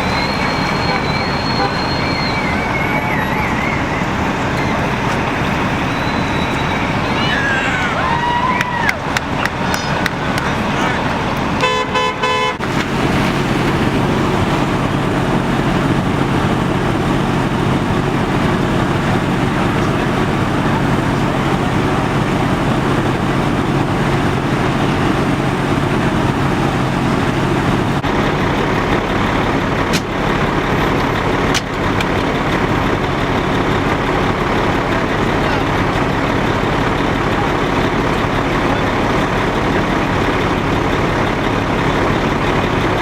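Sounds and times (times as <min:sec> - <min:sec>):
heavy vehicle engine idling: 0:00.0 - 0:43.0
horn toot: 0:00.1 - 0:04.1, 0:11.6 - 0:12.6.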